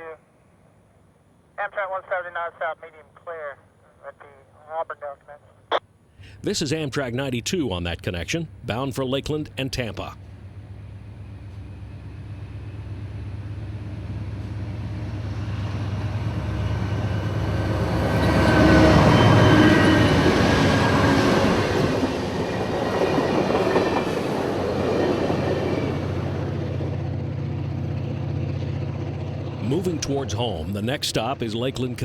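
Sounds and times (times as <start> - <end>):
passenger train passing: 6.2 - 32.0
train wheels on rails: 10.1 - 31.9.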